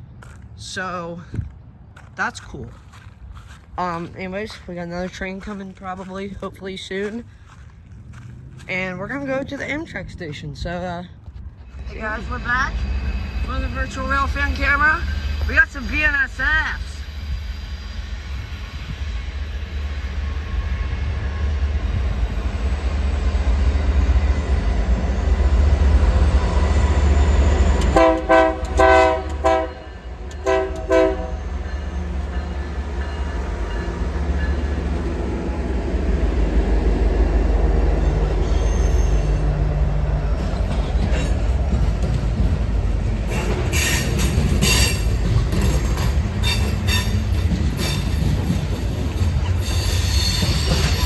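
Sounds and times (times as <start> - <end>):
diesel freight train rumbling: 0.0 - 51.0
locomotive horn short blasts: 27.8 - 31.5.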